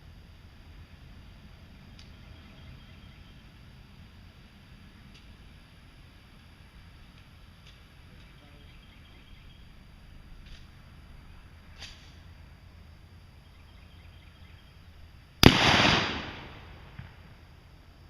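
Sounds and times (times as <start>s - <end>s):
gunshot: 15.4s - 17.2s.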